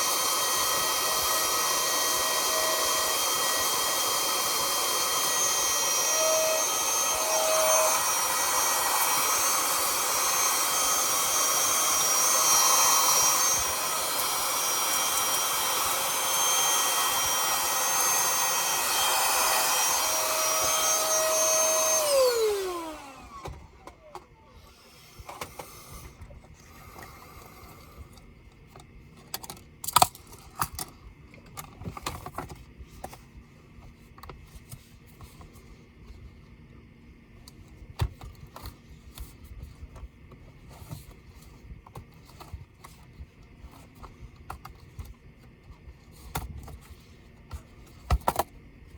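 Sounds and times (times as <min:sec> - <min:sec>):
electric motor whining: 0:00.0 - 0:24.0.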